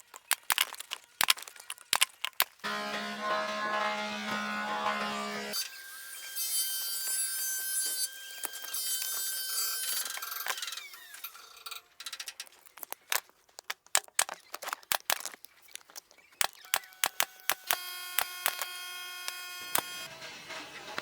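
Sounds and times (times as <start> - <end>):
small machine whining: 2.6 - 12.2, 16.4 - 21.0
sharp irregular clicks and taps: 12.7 - 18.7.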